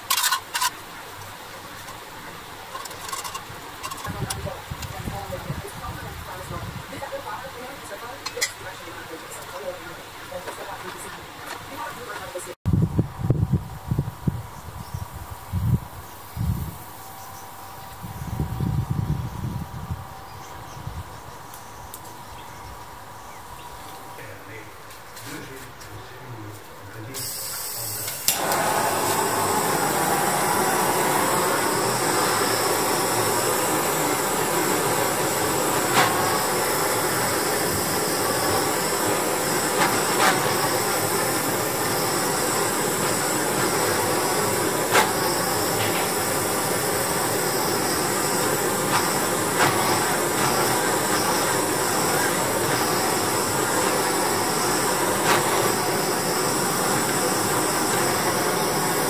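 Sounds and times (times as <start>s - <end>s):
aerosol spray can hissing: 28.4s - 59.0s.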